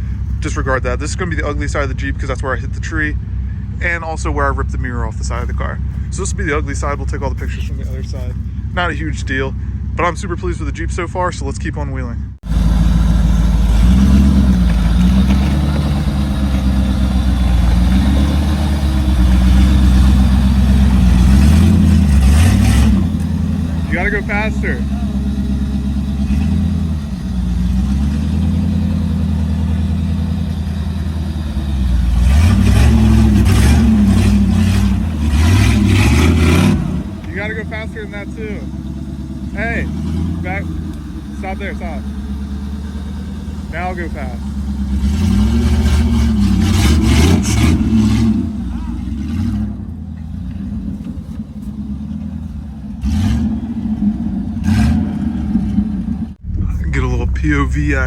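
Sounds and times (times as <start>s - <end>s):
tyres churning through mud: 0.0s - 11.5s, 12.4s - 58.0s
off-road engine revving: 0.0s - 58.0s.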